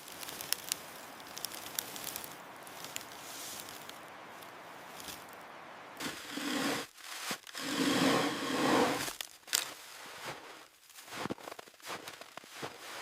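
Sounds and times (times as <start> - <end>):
digging tool scraping frozen ground: 6.0 - 11.3.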